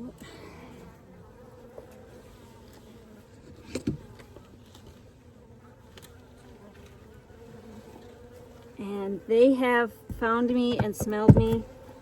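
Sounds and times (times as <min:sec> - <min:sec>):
bees buzzing: 0:00.2 - 0:12.0
sharp knocks: 0:10.1 - 0:11.7.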